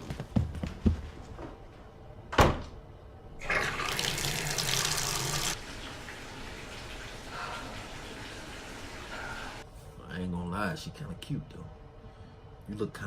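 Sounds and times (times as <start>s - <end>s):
water gushing from a tap: 3.4s - 9.6s.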